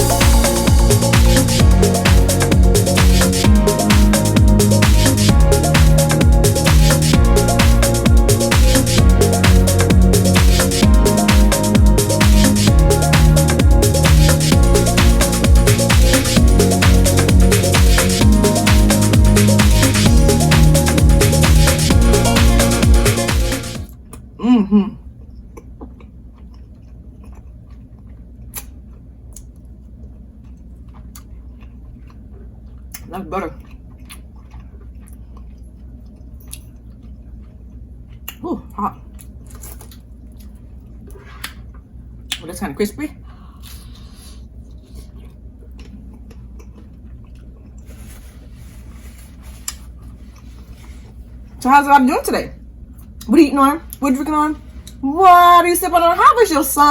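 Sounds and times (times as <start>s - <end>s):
person chewing food: 25.0s - 42.4s, 43.4s - 48.6s, 49.4s - 51.5s.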